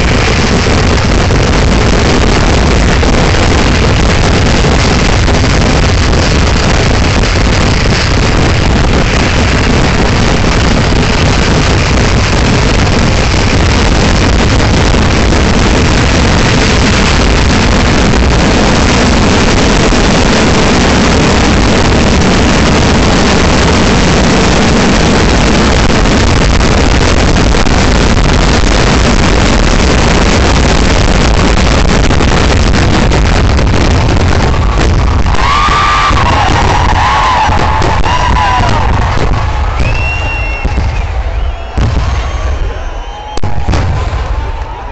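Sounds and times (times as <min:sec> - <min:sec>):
firecracker barrage: 0:00.0 - 0:44.9
crowd whooping and cheering: 0:34.2 - 0:44.9.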